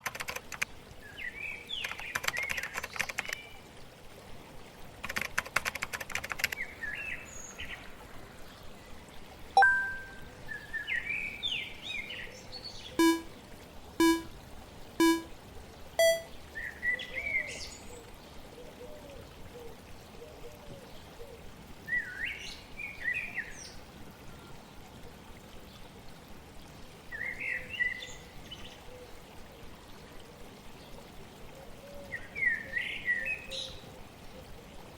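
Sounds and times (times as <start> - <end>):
flowing water: 0.0 - 34.9
ding: 9.6 - 10.2
electronic timer beeps: 9.6 - 10.2, 13.0 - 13.3, 14.0 - 14.3, 15.0 - 15.3, 16.0 - 16.3.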